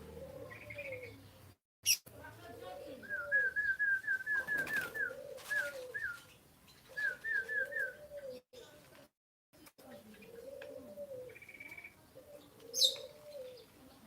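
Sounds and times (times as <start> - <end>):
dove cooing: 0.0 - 1.2, 2.4 - 6.2, 6.9 - 8.5, 10.0 - 14.0.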